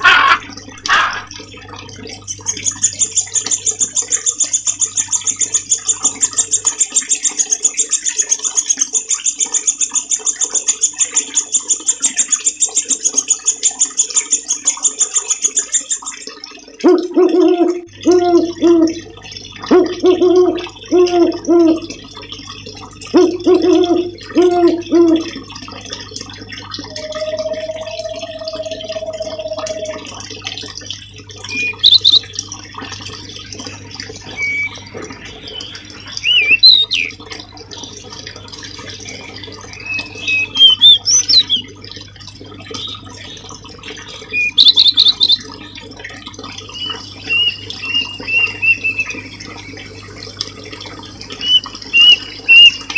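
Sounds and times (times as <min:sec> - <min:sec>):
steady low hum: 0:26.8 - 0:30.2
songbird calling and whistling: 0:26.9 - 0:30.0, 0:31.5 - 0:32.3, 0:34.3 - 0:34.9, 0:35.5 - 0:37.2, 0:39.8 - 0:41.7, 0:44.3 - 0:45.4, 0:46.8 - 0:49.2, 0:51.4 - 0:52.9.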